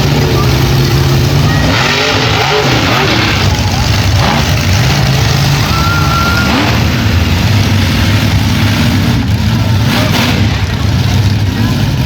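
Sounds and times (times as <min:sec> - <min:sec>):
truck engine low rumble: 0:00.0 - 0:12.0
short high whistle: 0:05.6 - 0:06.6.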